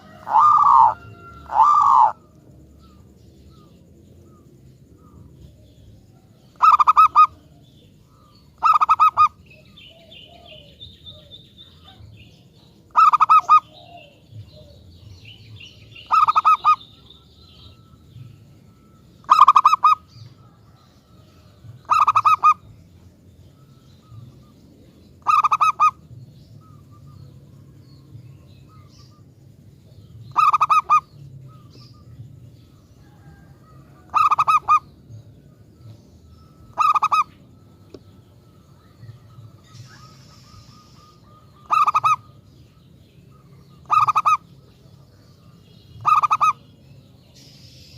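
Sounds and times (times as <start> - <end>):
dove cooing: 0.0 - 22.9, 23.6 - 29.2, 30.0 - 46.6
small birds chirping: 0.0 - 47.9.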